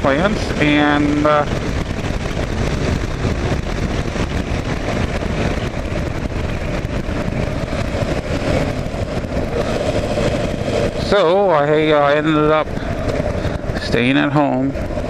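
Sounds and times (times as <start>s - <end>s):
motorcycle engine running: 0.0s - 15.0s
wind rush on microphone: 0.0s - 15.0s.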